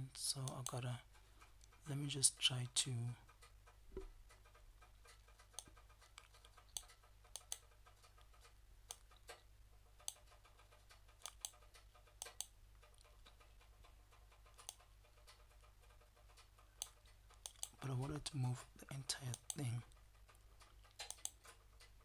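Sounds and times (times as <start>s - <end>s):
computer mouse and keyboard clicks: 3.3s - 9.4s, 10.0s - 22.0s
low steady hum: 17.3s - 20.6s.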